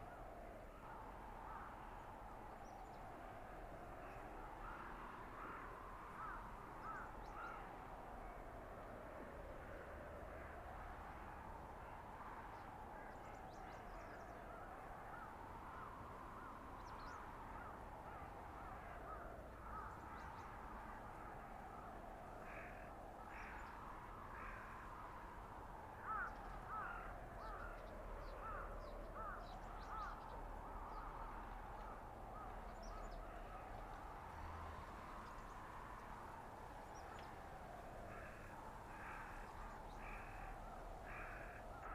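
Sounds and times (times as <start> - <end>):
blizzard wind howling: 0.0 - 41.9.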